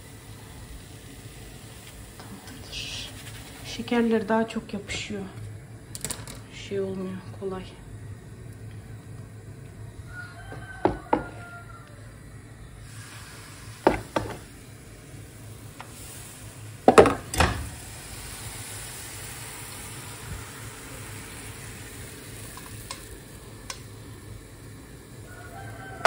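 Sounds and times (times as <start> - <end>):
crepes sizzling in a pan: 12.8 - 26.0.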